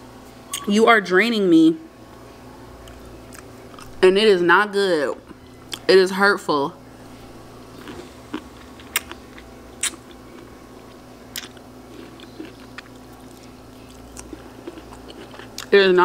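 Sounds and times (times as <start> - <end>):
faint steady hum: 0.0 - 16.0
person chewing: 2.8 - 4.0, 7.7 - 15.7.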